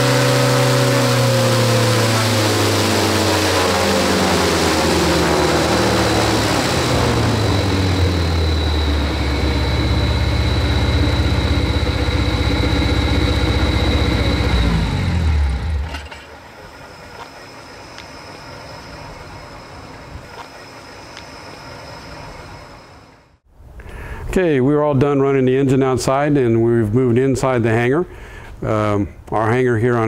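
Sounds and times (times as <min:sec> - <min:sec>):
engine driving propeller: 0:00.0 - 0:23.4
high whine: 0:00.0 - 0:23.5.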